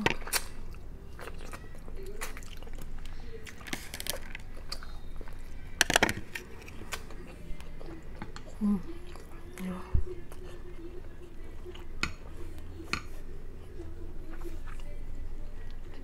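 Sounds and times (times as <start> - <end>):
chewing and biting: 0.0 - 9.7.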